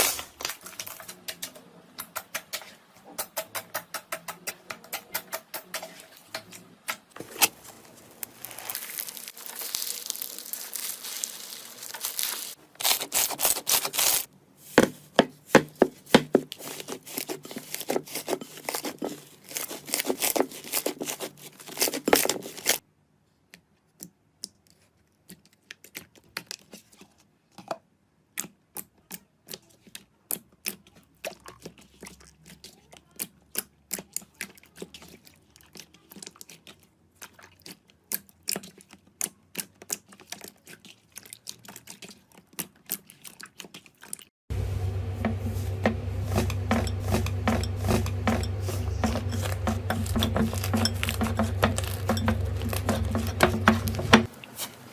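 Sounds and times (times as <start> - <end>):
slime tearing: 7.3 - 14.3, 16.5 - 22.8
slime crackling and popping: 7.4 - 14.3.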